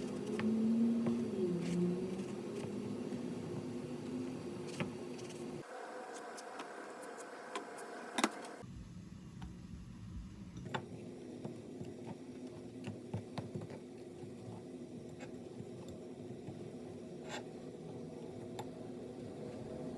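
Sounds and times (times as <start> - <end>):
steady hum: 0.0 - 10.8.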